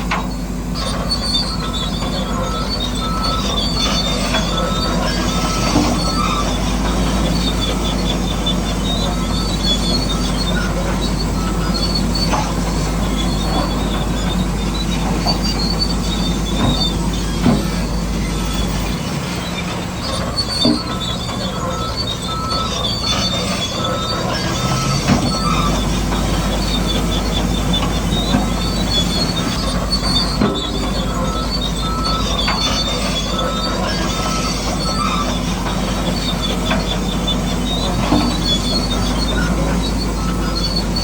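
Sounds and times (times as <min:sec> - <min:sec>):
high squeals: 0:00.2 - 0:41.0
small electric motors whining: 0:00.8 - 0:41.0
clicks and knocks of tracks: 0:12.2 - 0:21.7.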